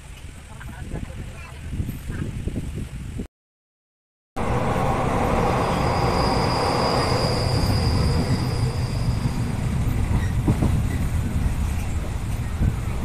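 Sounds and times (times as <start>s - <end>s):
thin high whine: 4.4s - 10.3s
rushing air: 4.4s - 13.0s
train wheels rumbling on rails: 4.4s - 13.0s.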